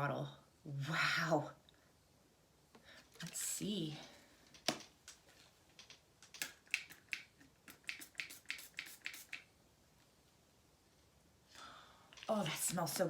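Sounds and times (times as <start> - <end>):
spray bottle clicks and taps: 5.8 - 9.5.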